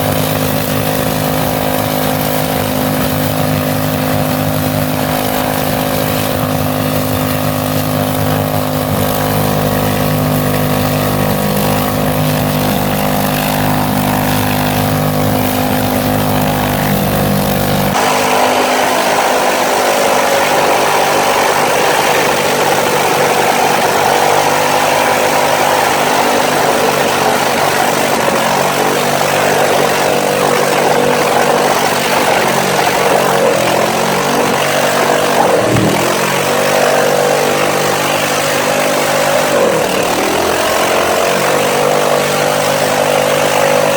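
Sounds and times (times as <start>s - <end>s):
car engine revving at high speed: 0.0s - 43.9s.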